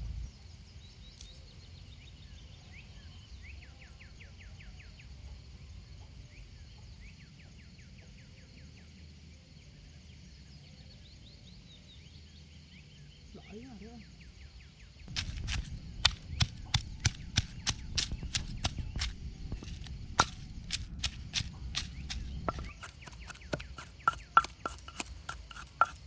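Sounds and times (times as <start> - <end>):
high insect drone: 0.0 - 26.0.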